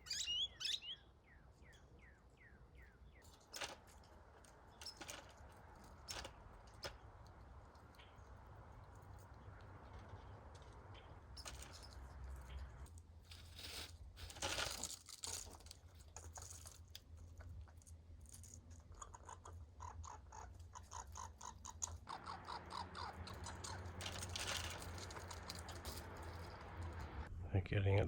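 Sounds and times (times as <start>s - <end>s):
squirrels chattering: 0.0s - 1.1s, 18.7s - 27.3s.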